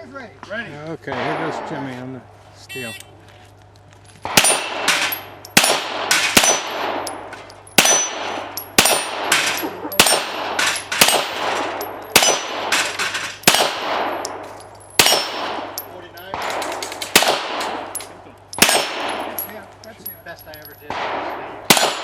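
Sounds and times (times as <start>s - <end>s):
pistol shots: 4.2s - 19.4s, 20.9s - 22.0s
steel plates ringing: 6.4s - 12.7s.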